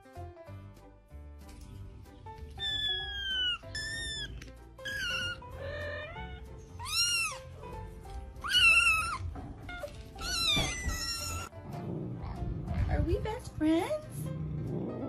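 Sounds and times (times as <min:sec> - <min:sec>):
background music: 0:00.0 - 0:15.0
kittens mewing: 0:02.5 - 0:12.8.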